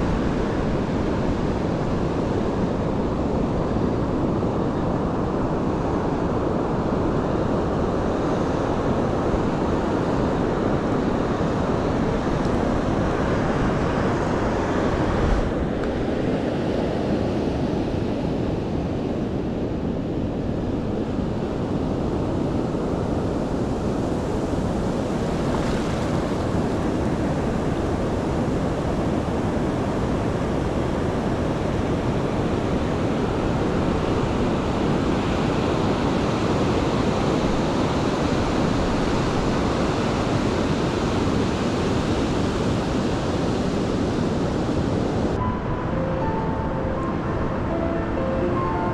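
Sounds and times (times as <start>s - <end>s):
wind buffeting microphone: 0.0s - 48.9s
ocean surf washing in: 20.6s - 48.9s.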